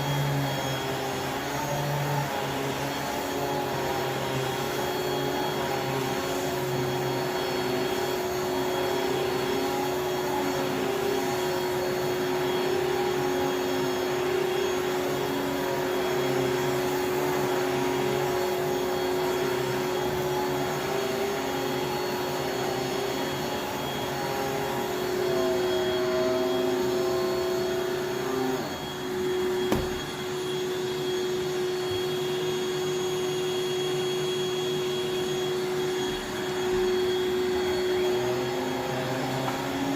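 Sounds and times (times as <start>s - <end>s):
vacuum cleaner motor whine: 0.0s - 39.9s.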